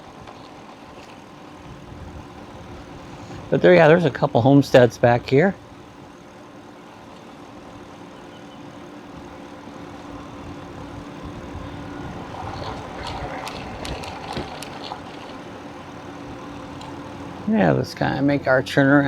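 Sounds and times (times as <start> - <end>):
motor hum: 0.0 - 19.0
sharp clicks and clanks: 12.3 - 15.6.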